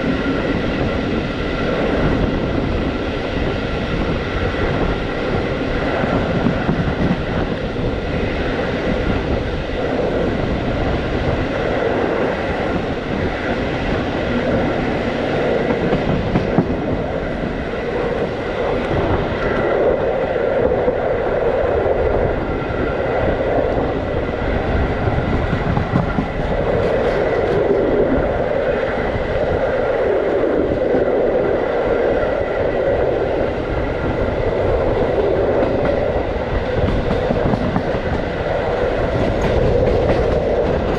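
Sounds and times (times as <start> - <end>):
train rumbling on track: 0.0 - 40.9.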